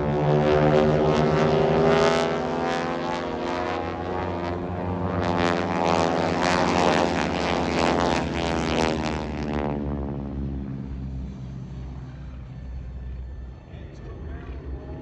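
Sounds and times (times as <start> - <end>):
propeller airplane passing: 0.0 - 15.0.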